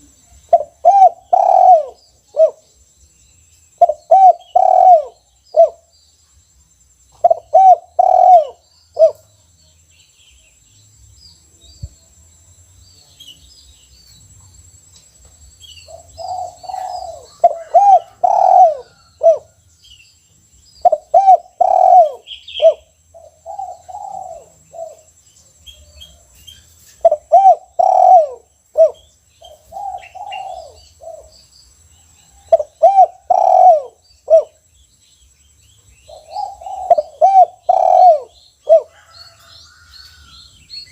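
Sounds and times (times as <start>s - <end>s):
dove cooing: 0.0s - 2.6s, 3.8s - 5.9s, 7.2s - 9.3s, 15.9s - 19.6s, 20.8s - 25.1s, 27.0s - 31.3s, 32.4s - 34.6s, 36.1s - 39.5s.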